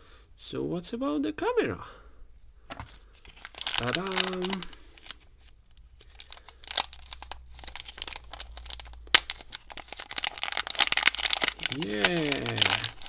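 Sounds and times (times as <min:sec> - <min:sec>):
wrapping crinkling and crackling: 0:02.8 - 0:13.0.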